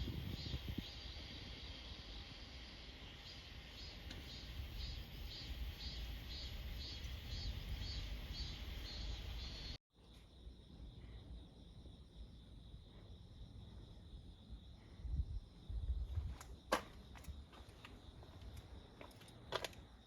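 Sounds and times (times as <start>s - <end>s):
wind on microphone: 0.0s - 1.1s, 15.0s - 16.5s
insects chirping: 0.0s - 20.0s.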